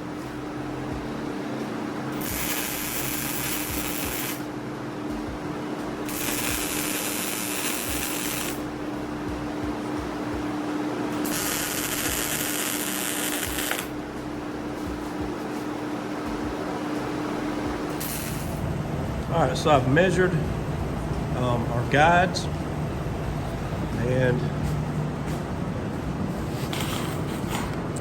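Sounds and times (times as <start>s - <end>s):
steady hum: 0.0s - 28.0s
electric arc hissing crackle: 2.2s - 4.4s, 6.1s - 8.7s, 11.2s - 13.9s, 18.0s - 18.6s.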